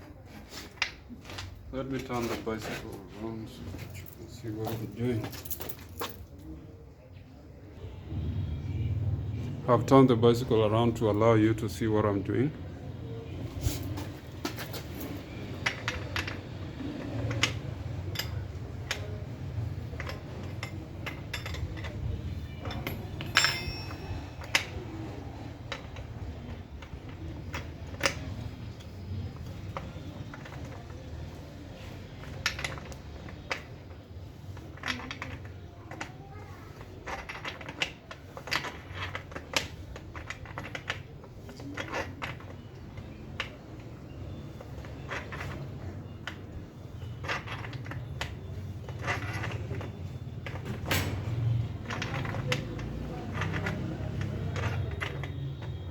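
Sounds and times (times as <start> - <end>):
metal tools clinking: 3.8 - 6.4, 13.7 - 31.0, 36.8 - 55.9
ringing metallic clank: 20.6 - 25.0.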